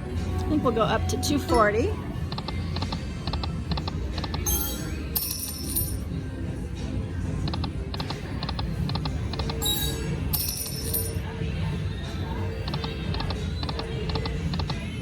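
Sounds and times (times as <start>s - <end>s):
slot machine reels ticking: 2.3s - 6.0s, 7.4s - 11.3s, 12.6s - 15.0s
casino floor hum: 3.7s - 6.1s
electronic chimes: 4.4s - 6.0s.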